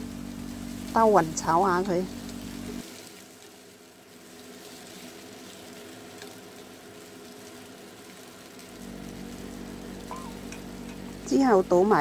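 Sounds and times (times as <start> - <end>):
chicken sizzling in hot oil: 0.0 - 12.0
wooden spatula stirring: 2.2 - 9.2.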